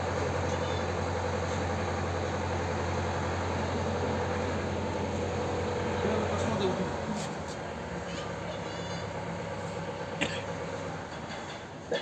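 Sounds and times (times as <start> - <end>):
engine hum: 0.0 - 11.6.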